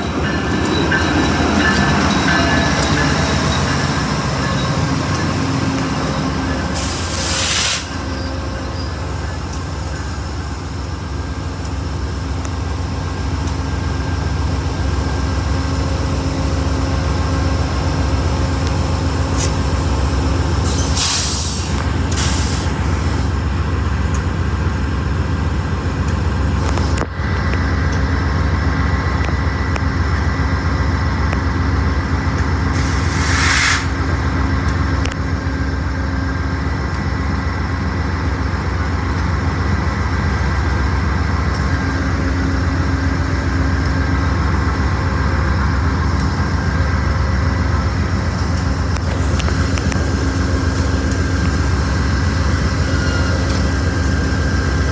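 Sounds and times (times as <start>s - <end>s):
diesel locomotive idling: 0.0s - 33.3s, 33.9s - 54.9s
air brakes hissing: 6.1s - 10.6s, 20.6s - 23.3s, 32.7s - 34.0s.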